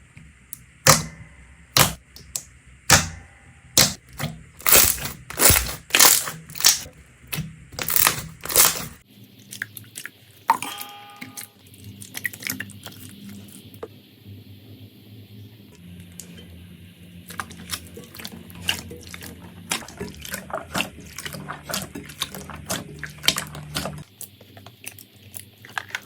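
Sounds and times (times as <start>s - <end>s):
crunchy slime crackling: 3.8s - 10.1s, 17.2s - 26.0s.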